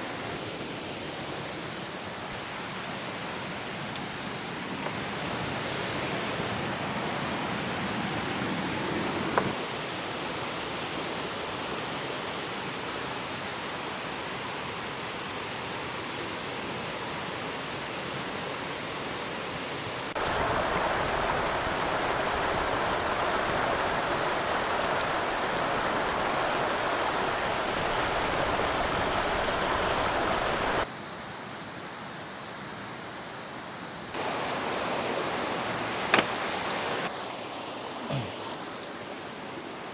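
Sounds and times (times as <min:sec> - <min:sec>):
thin high whine: 0:05.0 - 0:10.1
river water rushing: 0:20.1 - 0:30.9, 0:34.1 - 0:39.9.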